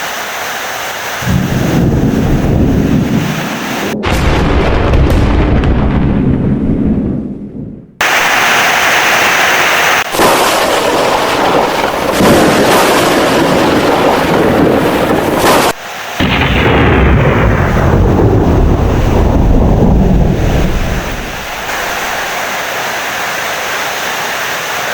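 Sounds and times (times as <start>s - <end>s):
heavy rain: 0.0s - 4.0s, 8.0s - 24.9s
deep rumble of thunder: 1.2s - 8.0s, 10.2s - 15.6s, 16.2s - 22.2s.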